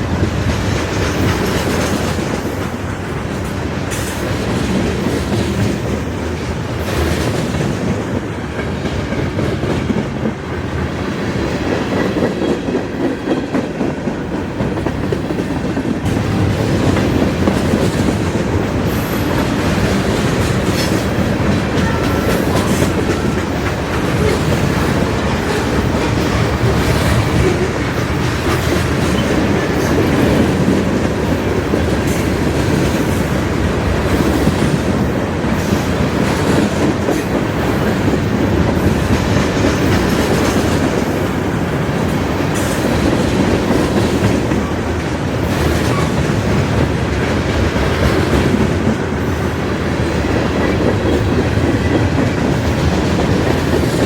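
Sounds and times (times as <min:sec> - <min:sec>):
freight train cars rolling past: 0:00.0 - 0:54.0.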